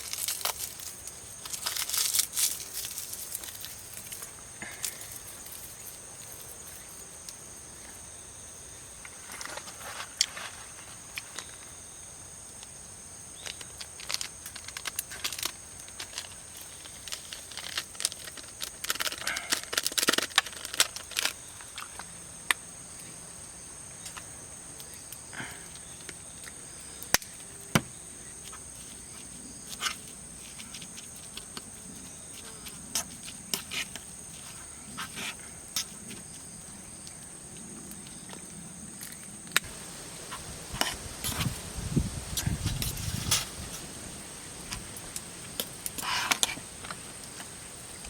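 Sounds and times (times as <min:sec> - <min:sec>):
clicks and rustles of handling: 0:00.0 - 0:07.4, 0:13.4 - 0:22.1
insects droning: 0:00.0 - 0:48.0.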